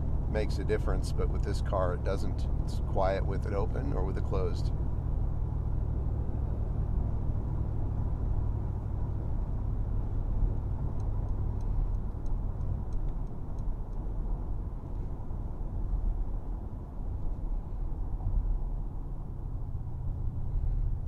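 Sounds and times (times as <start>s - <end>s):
road and engine rumble in cabin: 0.0s - 21.0s
faint light ticks: 10.9s - 14.1s.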